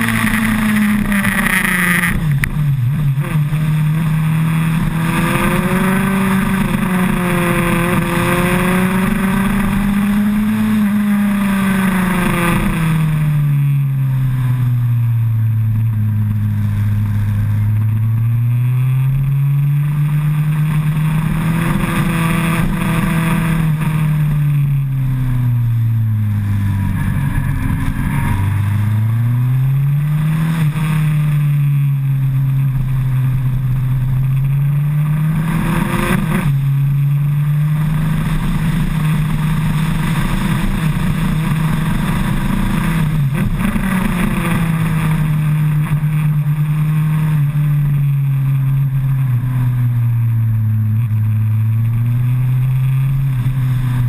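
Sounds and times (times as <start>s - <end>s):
motorcycle engine revving: 0.0s - 54.0s
wind rush: 25.8s - 29.8s.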